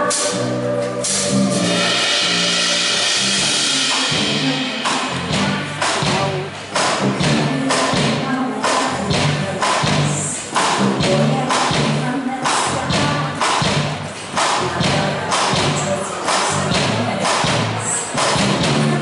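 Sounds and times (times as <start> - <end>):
cymbal wash: 0.0 - 6.1
bass line: 0.0 - 19.0
live pop band playing: 0.0 - 19.0
steady drum beat: 0.0 - 19.0.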